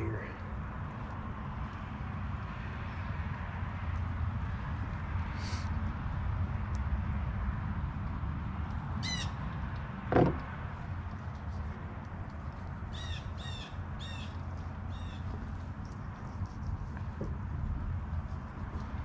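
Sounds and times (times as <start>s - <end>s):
low outdoor rumble: 0.0s - 19.0s
knock: 10.1s - 10.5s.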